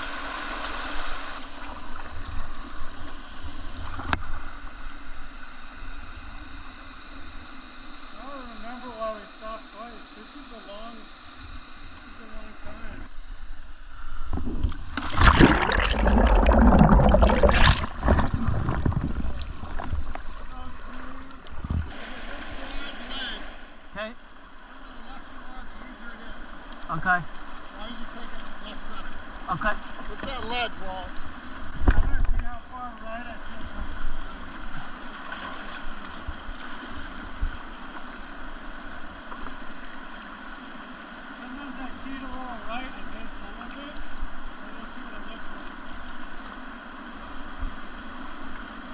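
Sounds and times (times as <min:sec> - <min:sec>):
river water splashing and rushing: 0:00.0 - 0:02.2, 0:14.9 - 0:22.8.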